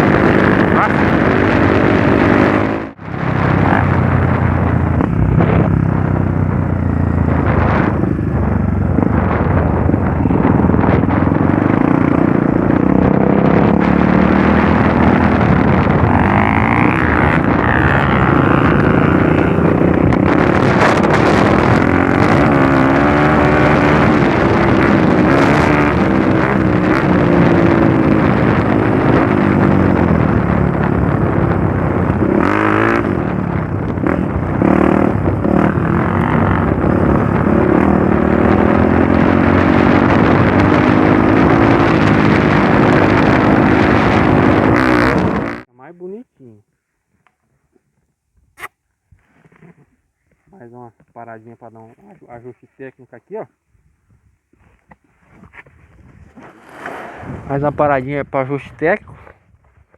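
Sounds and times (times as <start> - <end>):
motorcycle engine revving: 0.0 - 45.7.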